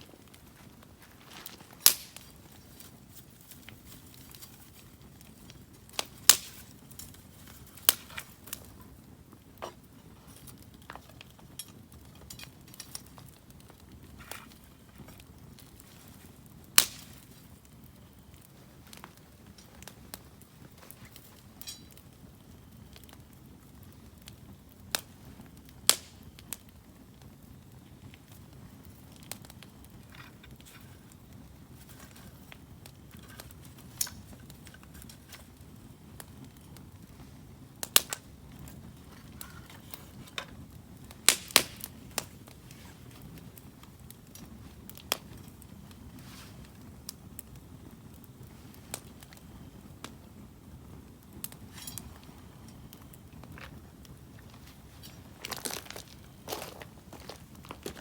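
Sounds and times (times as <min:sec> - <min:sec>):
campfire crackling: 0:00.0 - 0:58.0
loud fire pops: 0:00.0 - 0:58.0.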